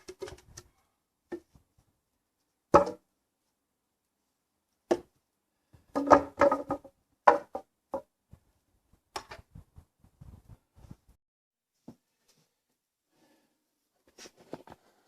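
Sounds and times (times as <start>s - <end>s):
wooden knocks and clunks: 2.8s - 3.0s, 5.8s - 8.1s.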